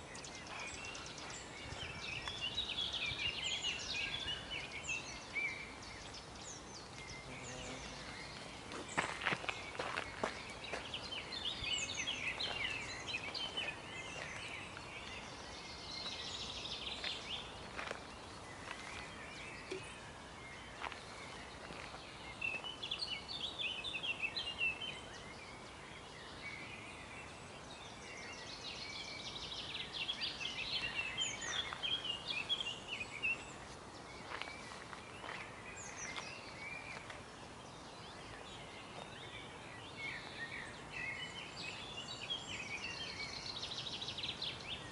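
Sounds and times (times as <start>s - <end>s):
faint background hiss: 0.0s - 44.9s
songbirds chirping and trilling: 0.0s - 44.9s.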